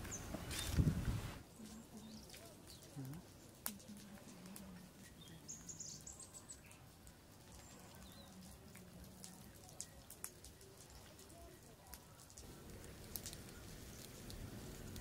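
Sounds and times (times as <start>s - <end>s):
bird chirping: 0.0s - 0.8s, 5.0s - 6.9s.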